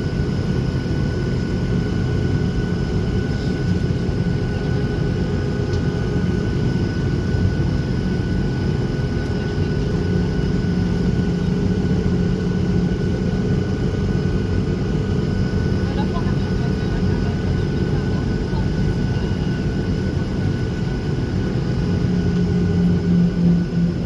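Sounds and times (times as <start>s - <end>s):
jet engine low rumble: 0.0s - 24.0s.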